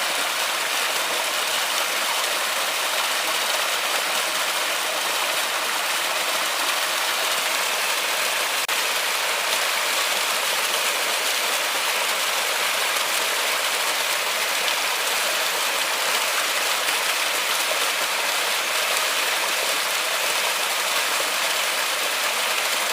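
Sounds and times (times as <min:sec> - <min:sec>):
river water flowing: 0:00.0 - 0:22.9.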